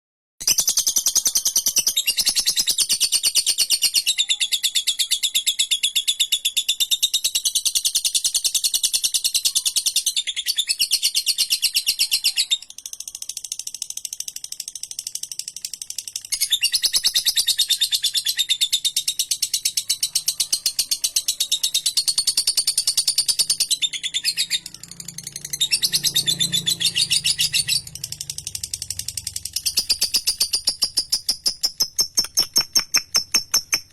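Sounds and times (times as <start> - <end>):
lovebird chattering trill: 0.4 - 33.9.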